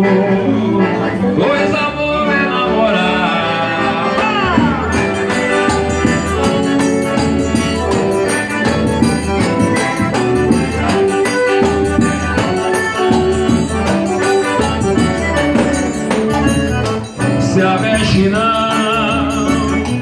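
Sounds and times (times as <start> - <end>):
live band playing instrumental: 0.0 - 20.0
shaker percussion: 4.9 - 20.0.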